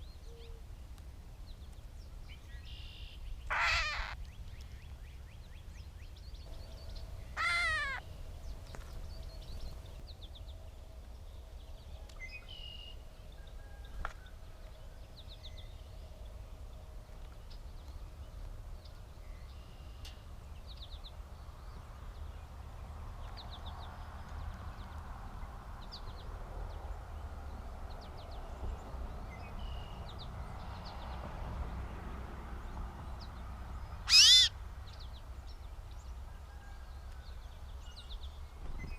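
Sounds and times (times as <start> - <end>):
bird harsh mew call: 3.5 - 4.2, 7.4 - 8.0, 34.1 - 34.5.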